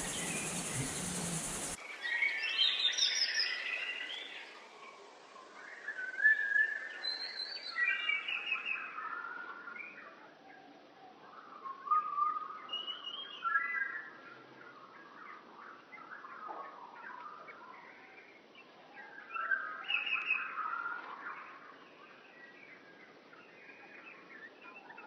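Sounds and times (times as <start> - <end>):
birds chirping: 0.0 - 1.8.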